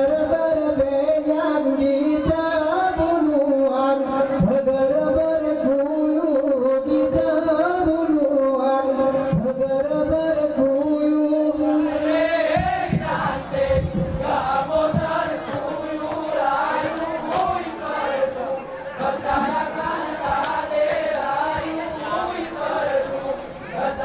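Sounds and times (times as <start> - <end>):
men chanting in unison: 0.0 - 24.0
claps and body slaps: 16.8 - 18.0, 20.3 - 21.3.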